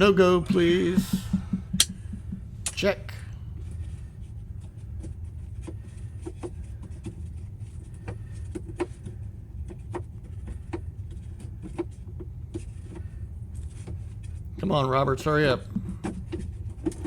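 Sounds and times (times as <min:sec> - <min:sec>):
steady low rumble: 0:00.0 - 0:11.6
hand tools clicking and tapping: 0:00.5 - 0:02.8, 0:15.6 - 0:17.0.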